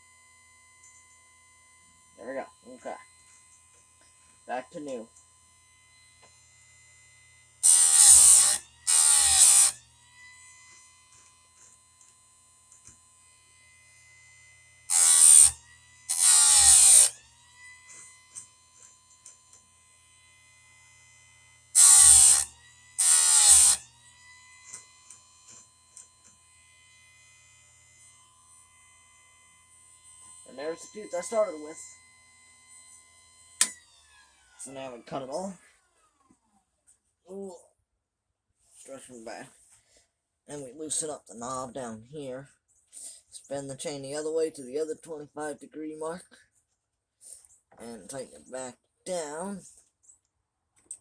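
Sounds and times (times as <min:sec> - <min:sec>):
faint motor hum: 0:00.0 - 0:36.4
grinding wheel grinding chain teeth: 0:06.2 - 0:12.1, 0:13.6 - 0:19.6, 0:21.7 - 0:26.1.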